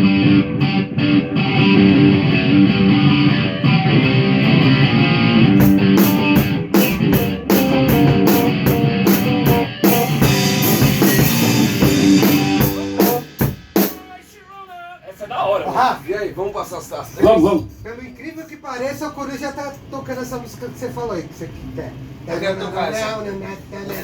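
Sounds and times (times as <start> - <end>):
guitar chords: 0.0 - 14.2
drum kit with cymbals: 5.5 - 14.5.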